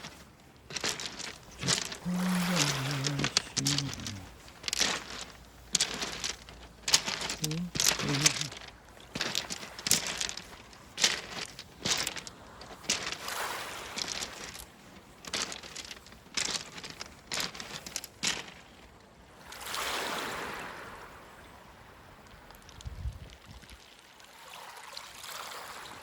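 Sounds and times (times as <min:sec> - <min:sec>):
stones clicking together: 0:00.0 - 0:18.9
seawater washing among pebbles: 0:00.0 - 0:20.9.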